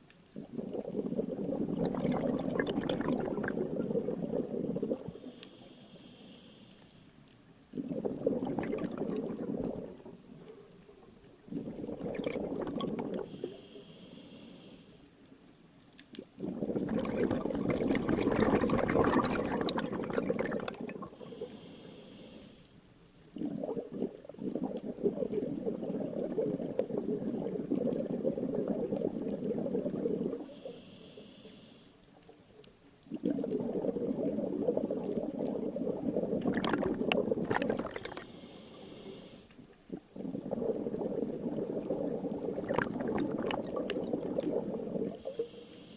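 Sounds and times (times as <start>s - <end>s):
exhaled bubbles rushing: 0.4s - 5.2s, 7.7s - 10.4s, 11.4s - 13.3s, 16.3s - 21.3s, 23.3s - 30.5s, 33.0s - 38.3s, 39.6s - 45.4s.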